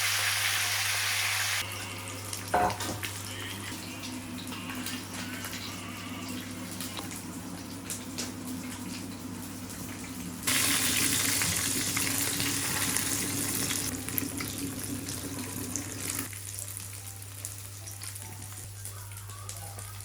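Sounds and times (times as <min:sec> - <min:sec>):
food sizzling in a hot pan: 0:00.0 - 0:03.4, 0:10.5 - 0:20.0.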